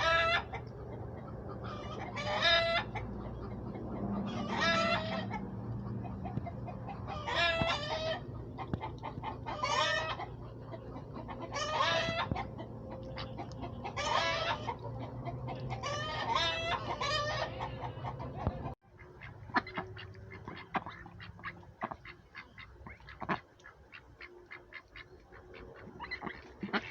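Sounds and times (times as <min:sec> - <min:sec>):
chickens calling: 0:00.0 - 0:26.9
steady low hum: 0:00.0 - 0:26.9.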